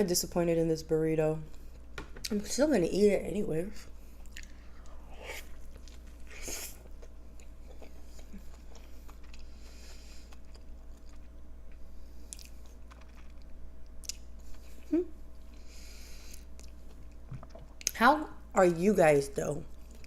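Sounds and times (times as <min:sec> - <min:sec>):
person chewing: 0:04.0 - 0:18.0, 0:19.8 - 0:20.0.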